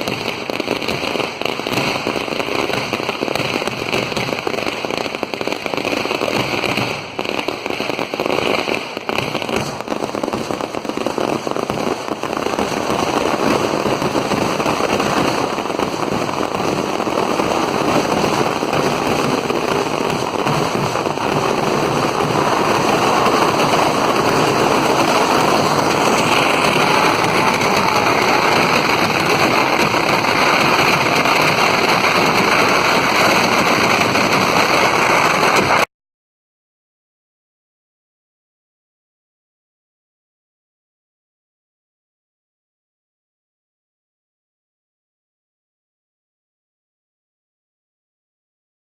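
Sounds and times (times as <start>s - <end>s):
firecrackers crackling: 0.0s - 35.9s.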